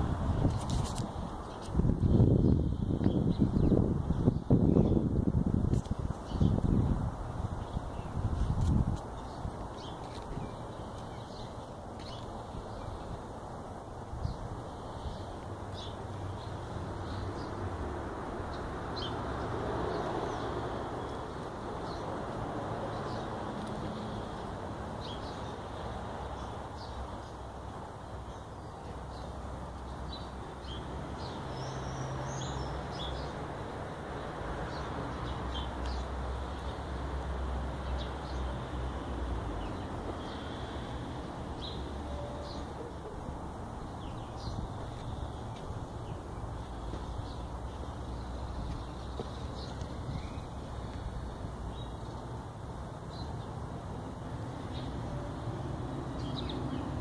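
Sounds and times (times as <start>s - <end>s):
birds chirping: 7.6s - 13.4s, 37.8s - 52.4s.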